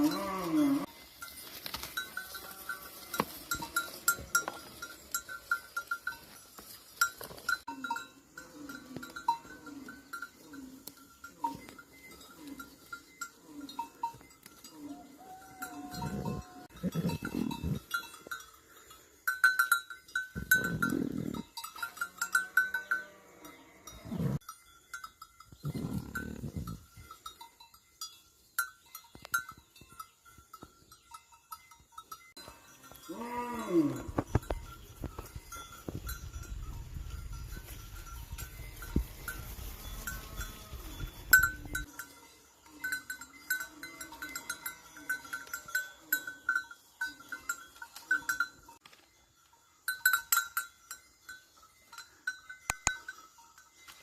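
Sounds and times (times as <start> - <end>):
sheep and goats bleating: 0.0 - 1.2, 1.8 - 6.0, 7.7 - 18.0, 20.4 - 24.4, 32.4 - 34.7, 38.7 - 46.6
animal bells clinking: 0.0 - 54.0.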